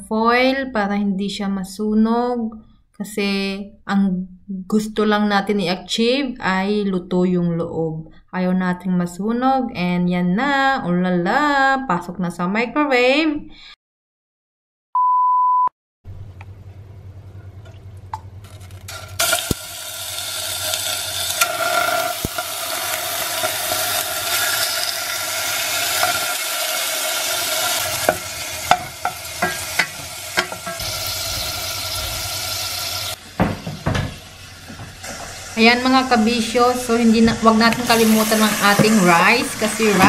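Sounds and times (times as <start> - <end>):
test-tone beep: 15.0 - 15.7
fat sizzling in a pot: 18.2 - 40.0.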